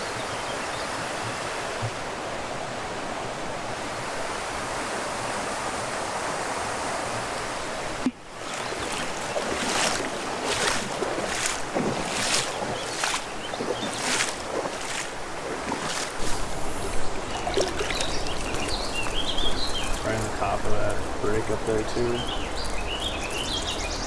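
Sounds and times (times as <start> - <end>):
waterfall rushing into pool: 0.0 - 7.6, 15.7 - 24.0
wind buffeting microphone: 11.0 - 24.0.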